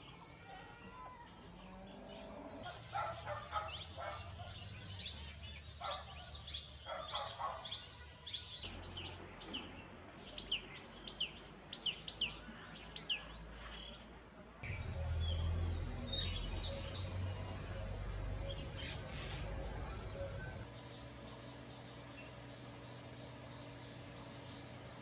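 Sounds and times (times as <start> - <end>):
low background rumble: 14.6 - 20.7
bird sharp high chirps: 14.7 - 20.6.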